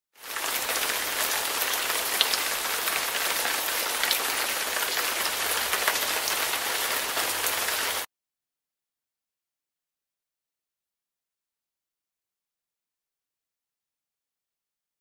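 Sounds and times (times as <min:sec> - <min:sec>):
steady rain hiss: 0:00.2 - 0:08.1.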